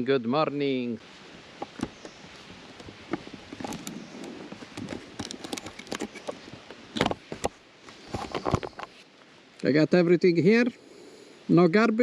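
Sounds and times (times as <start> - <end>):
rustling and clattering gear: 1.6 - 9.0.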